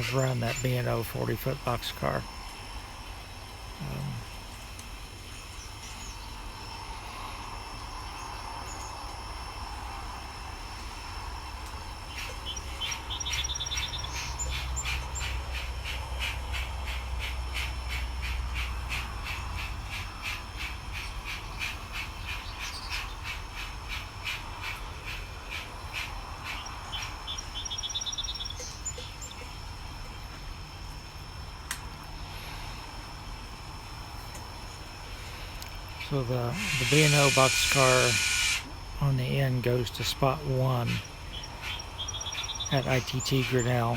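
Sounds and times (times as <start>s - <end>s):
short chirping trills: 36.0s - 38.7s
model steam locomotive chuffing: 36.1s - 41.1s.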